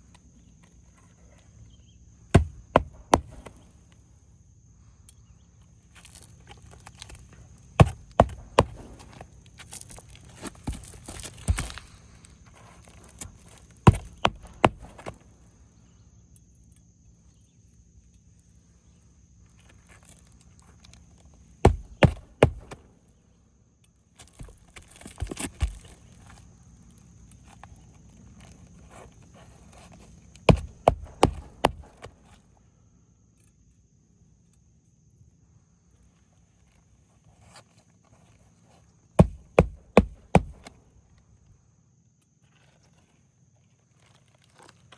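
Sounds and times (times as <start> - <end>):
hammer knocks on shingles: 2.4 - 3.6, 7.8 - 9.2, 10.6 - 11.9, 13.2 - 15.2, 21.6 - 22.8, 30.5 - 32.1, 39.2 - 40.8
shingle rustling: 2.4 - 3.7, 6.1 - 15.2, 21.7 - 22.8, 29.4 - 32.1, 39.2 - 40.7.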